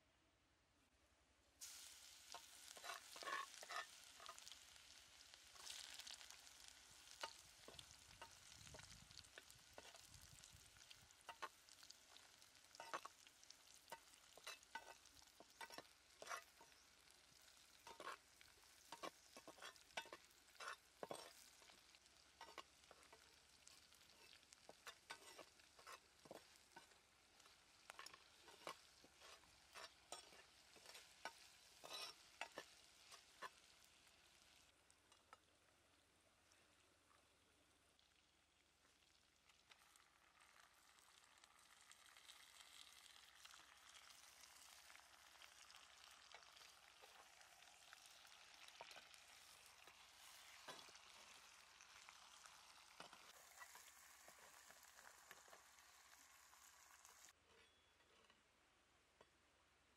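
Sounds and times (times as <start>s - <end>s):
garlic sizzling in hot oil: 1.6s - 36.0s, 37.3s - 57.4s
spatula scraping and knocking pot: 2.4s - 4.6s, 12.7s - 13.2s, 13.9s - 16.8s, 17.8s - 18.2s, 18.9s - 21.8s, 22.4s - 33.6s.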